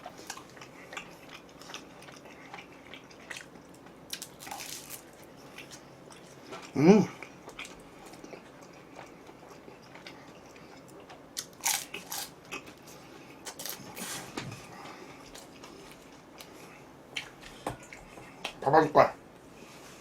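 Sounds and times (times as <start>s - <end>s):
biting and chewing pizza: 0.0s - 18.6s
crunchy bites: 4.1s - 5.8s, 11.4s - 12.6s.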